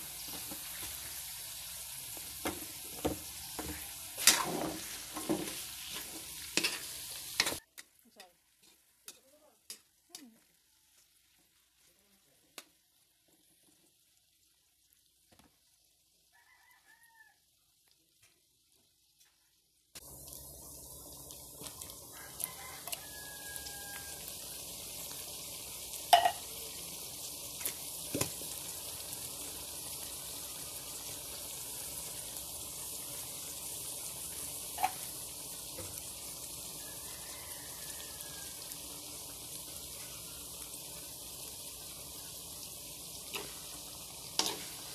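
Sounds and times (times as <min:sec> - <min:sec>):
meat sizzling in oil: 0:00.0 - 0:44.9.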